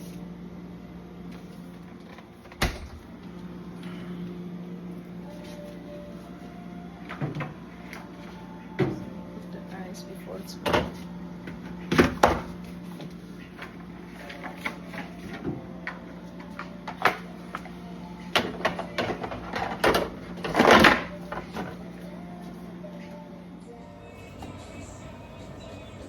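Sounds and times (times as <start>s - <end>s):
steady low hum: 0.0s - 26.0s
items clattering in fridge: 5.3s - 23.1s.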